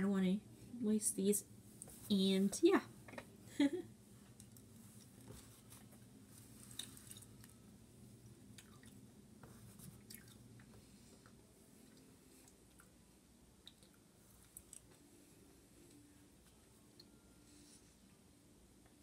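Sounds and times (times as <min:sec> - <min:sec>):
faint chewing of candy: 0:04.3 - 0:07.6, 0:08.2 - 0:09.0, 0:09.6 - 0:13.0, 0:13.6 - 0:17.2.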